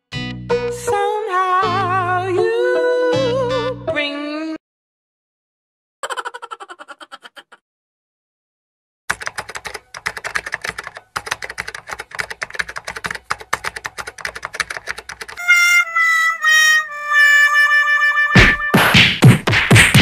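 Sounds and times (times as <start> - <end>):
rapid clicks: 9.1 - 15.4.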